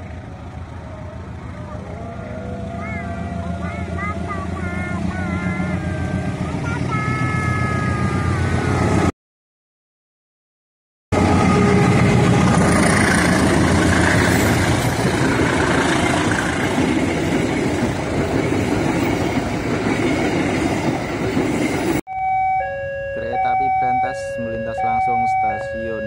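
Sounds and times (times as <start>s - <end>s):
locomotive engine: 0.0s - 9.1s, 11.2s - 26.0s
train wheels rushing on rails: 11.2s - 22.0s.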